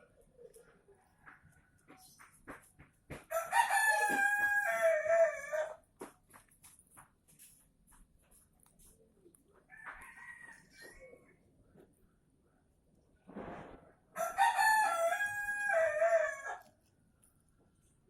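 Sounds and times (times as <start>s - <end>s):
rooster crowing: 3.3s - 5.8s, 9.7s - 11.2s, 14.2s - 16.7s.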